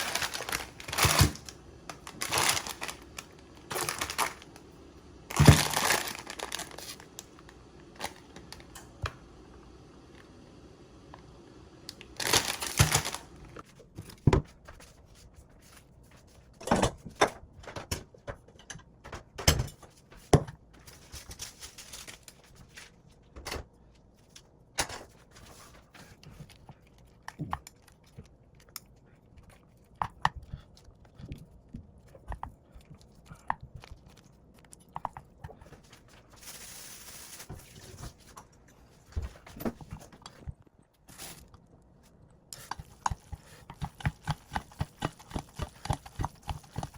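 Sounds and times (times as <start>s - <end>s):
packaging crinkling: 0.0s - 4.7s, 5.3s - 8.7s, 11.9s - 13.6s
rustling and tearing: 0.0s - 4.7s, 5.3s - 7.4s, 12.1s - 13.8s.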